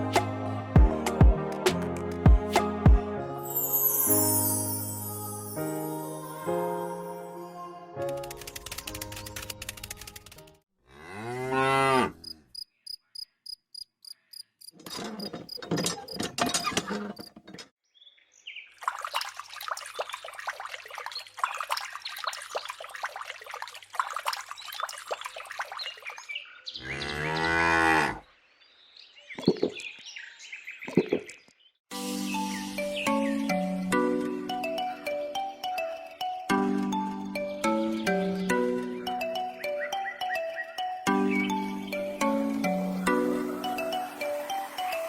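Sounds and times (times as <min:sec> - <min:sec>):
cow mooing: 0:10.8 - 0:12.4, 0:26.8 - 0:28.2.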